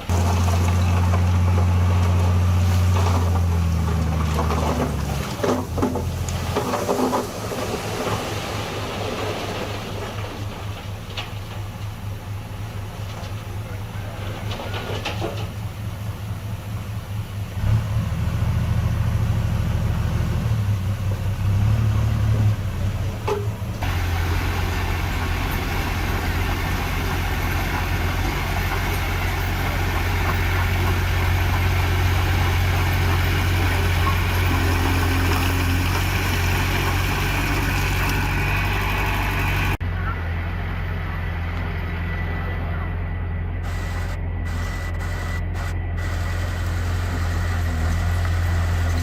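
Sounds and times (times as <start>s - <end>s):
heavy diesel engine droning: 0.0s - 49.0s.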